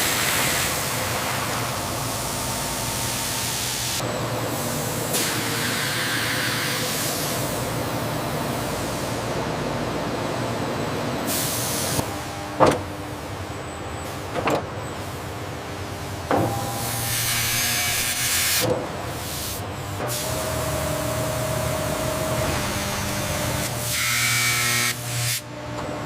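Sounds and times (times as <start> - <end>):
factory machinery humming: 0.0 - 26.0
air hiss bursts: 5.1 - 7.5, 11.3 - 12.0
steady machine whine: 15.5 - 19.0, 19.6 - 24.0.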